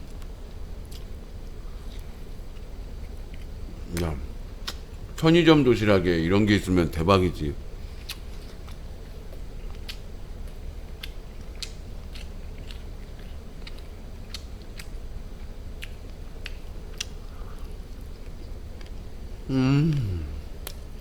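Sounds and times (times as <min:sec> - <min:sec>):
steady low hum: 0:00.0 - 0:21.0
person chewing food: 0:07.8 - 0:15.0, 0:15.8 - 0:20.9.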